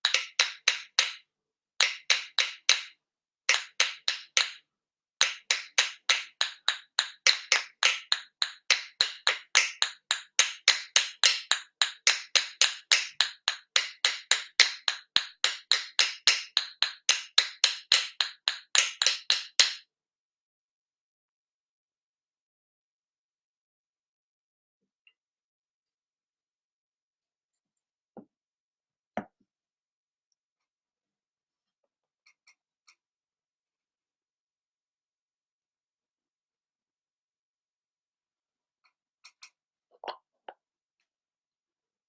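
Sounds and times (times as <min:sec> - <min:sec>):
hand percussion tapping: 0:00.0 - 0:01.2, 0:01.8 - 0:04.6, 0:05.2 - 0:19.8.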